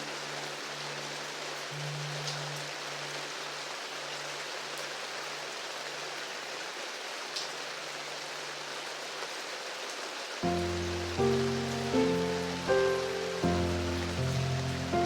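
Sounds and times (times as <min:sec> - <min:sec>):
steady rain falling: 0:00.0 - 0:15.0
water drips: 0:10.4 - 0:15.0.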